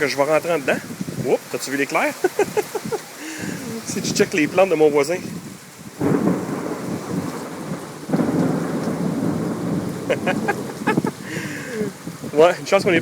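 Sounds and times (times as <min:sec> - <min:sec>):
heavy rain: 0:00.0 - 0:13.0
thunder rumbling: 0:05.3 - 0:13.0.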